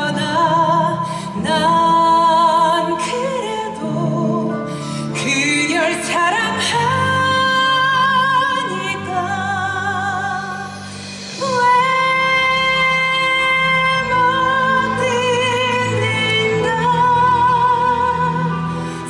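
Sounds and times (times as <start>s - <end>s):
person singing with vibrato: 0.0s - 19.0s.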